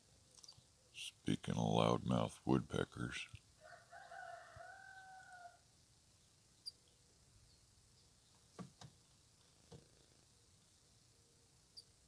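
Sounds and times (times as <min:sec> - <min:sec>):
long drawn-out bird call: 0:03.6 - 0:05.6.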